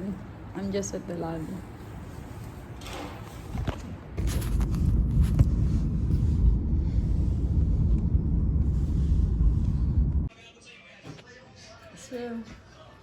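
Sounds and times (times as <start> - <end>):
loud low rumble: 4.2 - 10.3.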